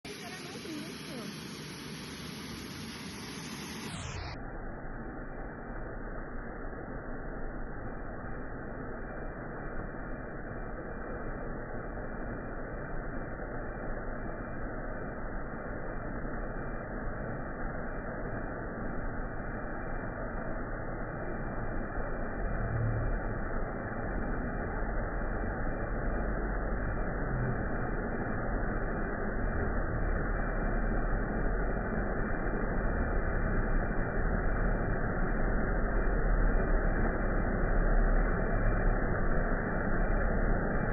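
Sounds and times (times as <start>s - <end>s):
low rumble: 0.0s - 40.9s
waterfall rushing: 0.1s - 4.2s.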